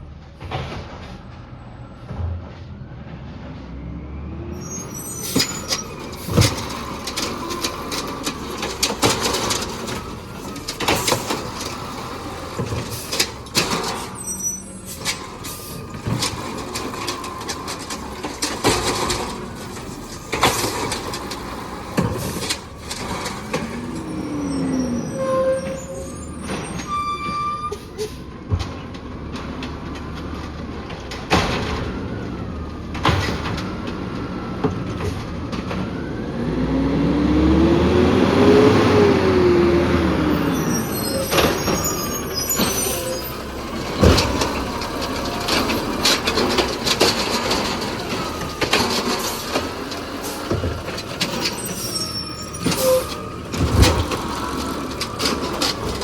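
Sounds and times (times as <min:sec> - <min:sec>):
diesel engine running: 0:00.2 - 0:56.0
bangs and clatter: 0:05.2 - 0:27.0, 0:28.4 - 0:35.9, 0:40.8 - 0:56.0.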